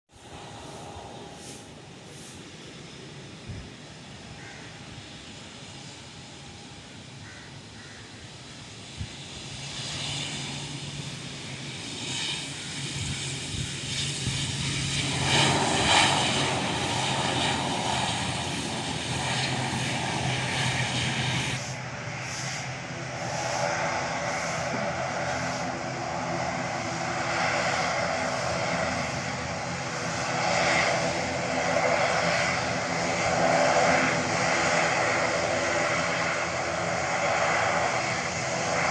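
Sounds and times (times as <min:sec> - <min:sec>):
propeller engines droning: 0:00.1 - 0:38.9.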